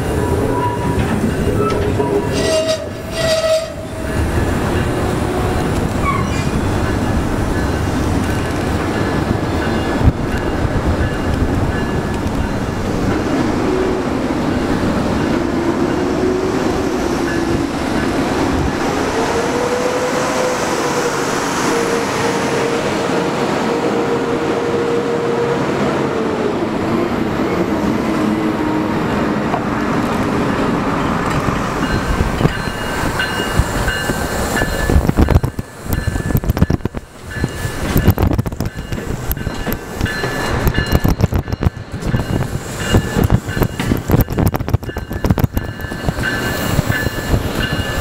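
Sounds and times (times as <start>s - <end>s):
train wheels rumbling: 0.0s - 48.0s
wheel squeal: 0.2s - 4.2s, 6.0s - 6.6s.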